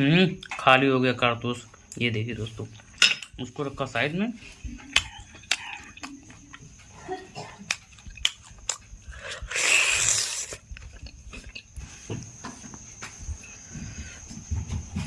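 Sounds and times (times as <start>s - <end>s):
biting and chewing meat: 7.5s - 11.9s.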